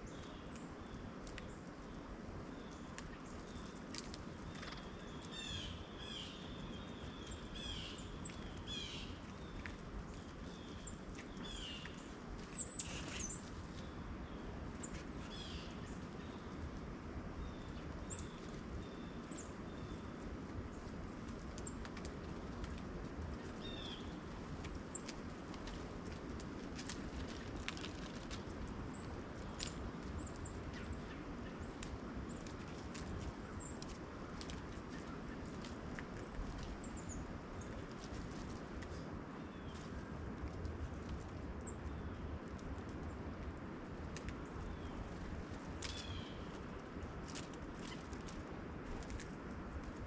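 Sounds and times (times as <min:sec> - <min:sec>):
birds chirping: 0:00.0 - 0:21.0
low outdoor rumble: 0:00.0 - 0:50.0.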